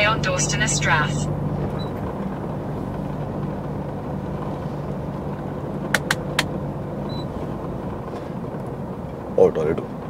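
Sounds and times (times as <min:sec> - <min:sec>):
road noise: 0:00.0 - 0:10.0
truck engine running: 0:00.0 - 0:10.0
sharp clicks: 0:06.0 - 0:06.5.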